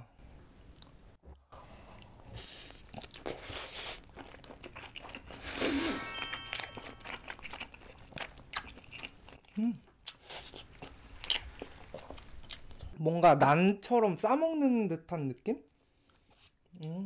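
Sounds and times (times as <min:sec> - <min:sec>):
chewing with crackles and smacks: 0:00.7 - 0:05.6, 0:06.4 - 0:13.0.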